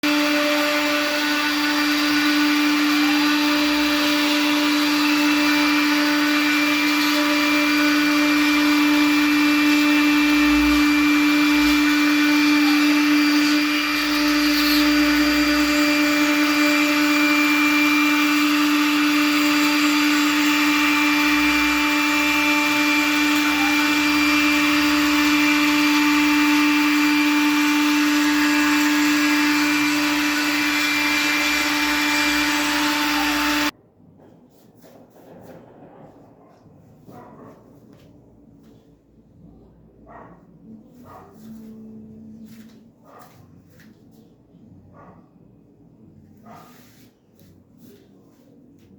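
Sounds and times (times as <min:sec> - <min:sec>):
cutter cutting through board: 0:00.0 - 0:33.7
router spindle whining: 0:00.0 - 0:33.7.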